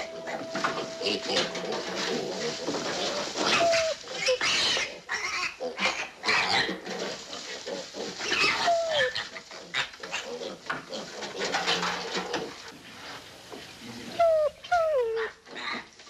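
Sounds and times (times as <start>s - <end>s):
piglets squealing: 3.4s - 6.5s, 8.4s - 9.2s, 14.1s - 15.3s.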